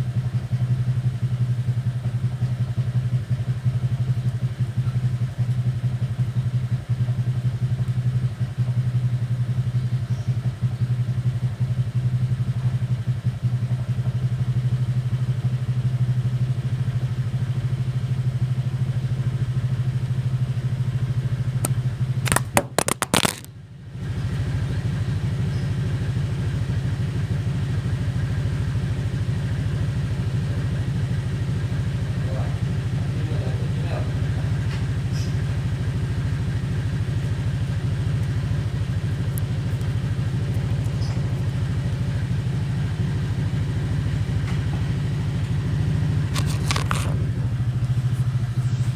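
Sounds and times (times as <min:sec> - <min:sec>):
small engine idling: 0:00.0 - 0:48.9
sharp clicks: 0:21.6 - 0:23.5.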